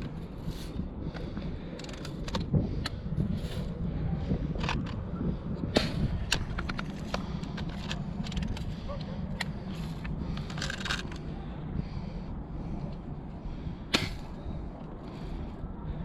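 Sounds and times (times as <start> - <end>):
air rifle clicks and knocks: 1.1 - 3.0, 5.7 - 11.3.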